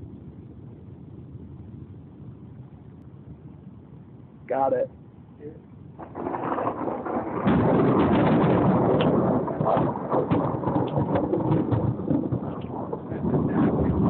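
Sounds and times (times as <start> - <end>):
thunder rumbling: 5.9 - 14.0
rain falling: 6.0 - 14.0.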